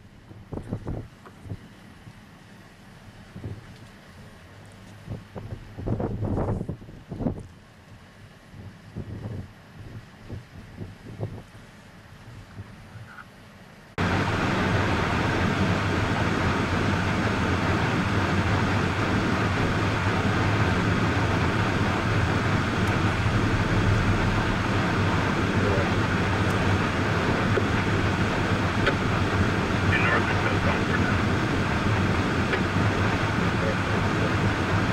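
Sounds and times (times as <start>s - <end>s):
car engine hum: 0.0s - 34.9s
road noise of moving car: 0.0s - 34.9s.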